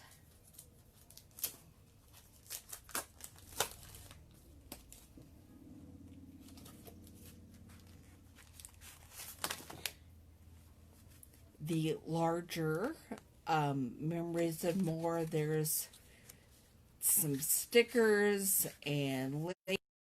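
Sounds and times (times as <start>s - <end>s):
faint low hum: 0.0s - 19.5s
packaging crinkling: 0.1s - 5.1s, 6.6s - 10.0s.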